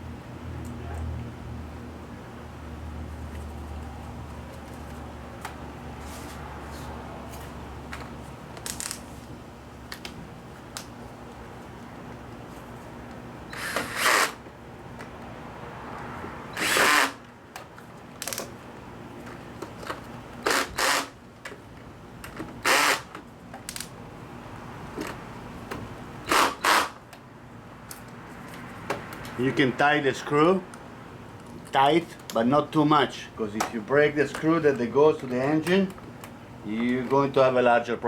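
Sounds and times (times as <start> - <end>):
power drill bursts: 13.5 - 14.4, 16.5 - 17.2, 20.4 - 21.2, 22.6 - 23.1, 26.2 - 27.0.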